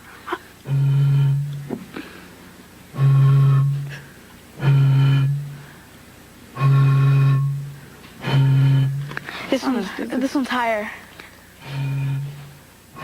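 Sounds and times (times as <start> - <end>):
air blown across bottle mouth: 0.0 - 5.8, 6.6 - 9.5.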